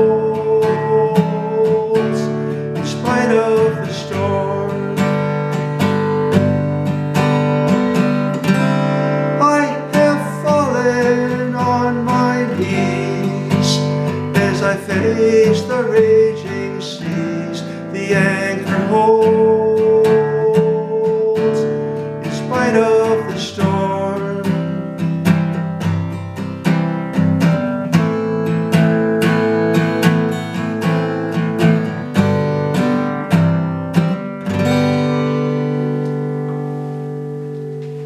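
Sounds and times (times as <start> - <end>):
acoustic guitar strumming chords: 0.0 - 38.0.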